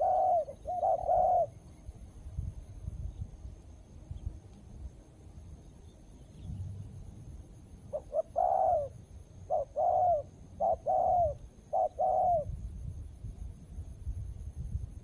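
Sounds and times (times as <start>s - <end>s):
dove cooing: 0.0s - 1.7s, 7.9s - 12.5s.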